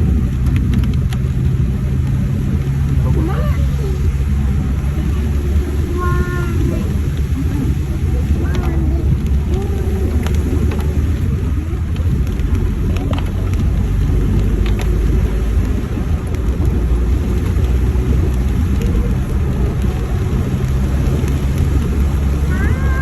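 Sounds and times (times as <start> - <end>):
vehicle engine and road noise: 0.0 - 23.0.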